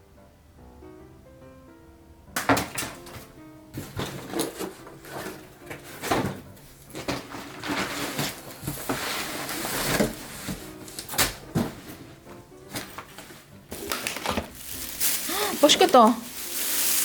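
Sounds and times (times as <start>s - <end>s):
knocks and clatter of handling: 2.4s - 17.0s
rustling hissy noise: 14.5s - 17.0s.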